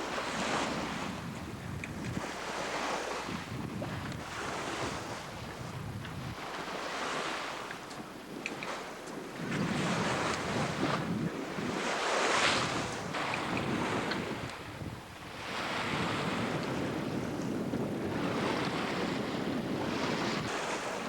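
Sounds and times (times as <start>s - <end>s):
water rushing along boat hull: 0.0s - 21.0s
wind buffeting microphone: 0.0s - 21.0s.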